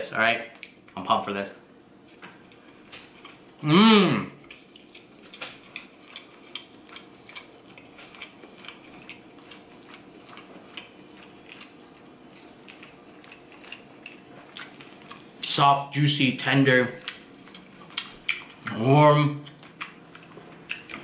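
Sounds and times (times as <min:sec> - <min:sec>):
wet chewing mouth sounds: 0:04.4 - 0:15.5, 0:17.0 - 0:18.8, 0:19.4 - 0:21.0.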